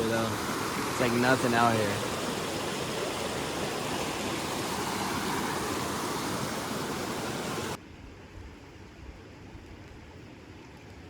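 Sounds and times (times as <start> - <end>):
rushing river water: 0.0 - 7.8.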